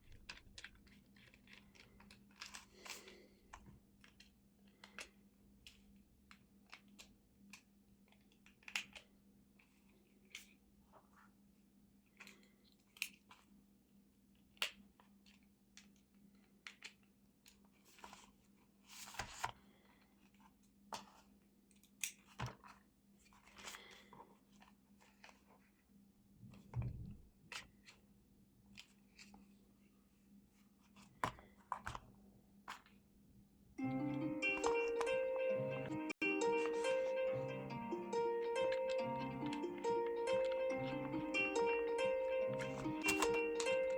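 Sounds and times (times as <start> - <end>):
plastic parts clicking and rustling: 0.0 - 10.6, 42.6 - 43.9.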